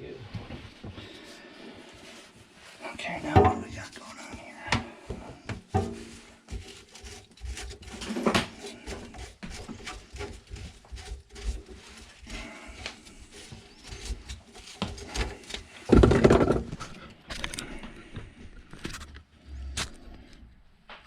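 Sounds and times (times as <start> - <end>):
knock and scrape: 3.0 - 17.0
plumbing parts clicking and knocking: 4.7 - 19.2.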